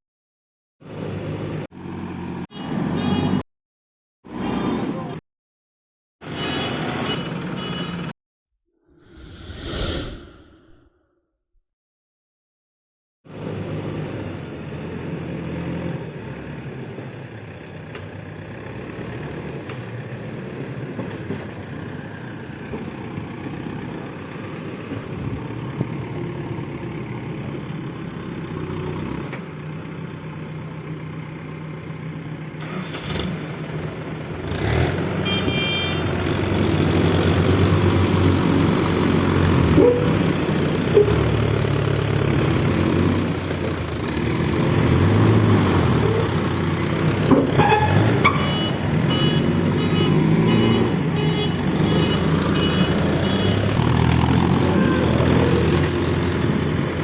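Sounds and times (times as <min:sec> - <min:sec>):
heavy diesel engines running: 0:13.3 - 0:57.0.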